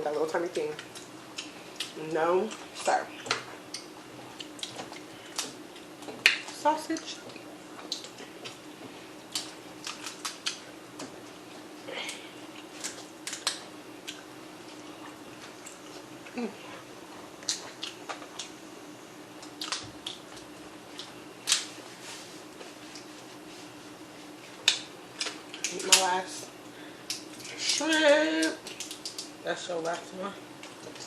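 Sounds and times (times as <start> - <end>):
steady low hum: 0.0 - 31.0
eating clicks and smacks: 0.8 - 8.6, 9.3 - 11.2, 12.0 - 14.3, 19.4 - 21.7, 24.6 - 26.1, 27.0 - 30.0.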